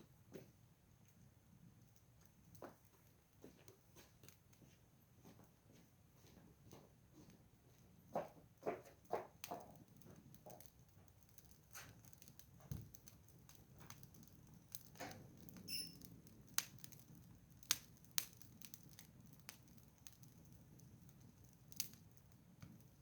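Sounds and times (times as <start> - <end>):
wood fire crackling: 0.0 - 23.0
sharp fire pops: 11.3 - 20.2.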